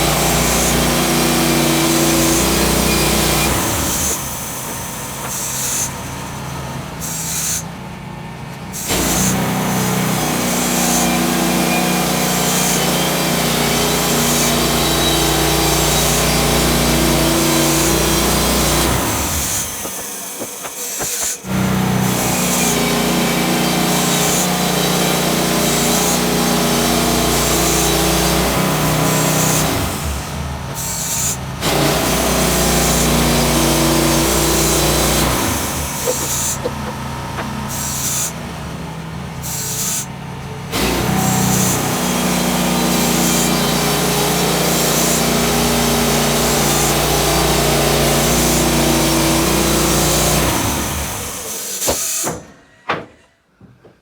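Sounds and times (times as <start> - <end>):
bandsaw sawmill cutting log: 0.0 - 52.8.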